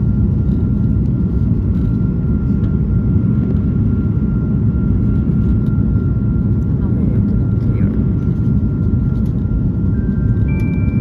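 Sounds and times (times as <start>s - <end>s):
engines and airflow rumble: 0.0s - 11.0s
thin steady high tone: 10.0s - 11.0s.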